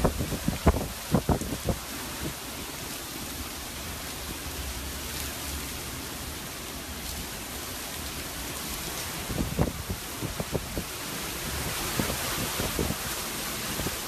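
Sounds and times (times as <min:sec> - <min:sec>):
wind rumble on microphone: 0:00.0 - 0:02.9, 0:08.0 - 0:14.0
heavy rain pouring: 0:00.0 - 0:14.0.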